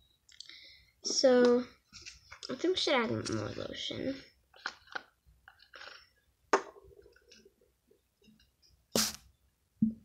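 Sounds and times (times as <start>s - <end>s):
lotion bottle sputtering air: 9.0s - 9.2s.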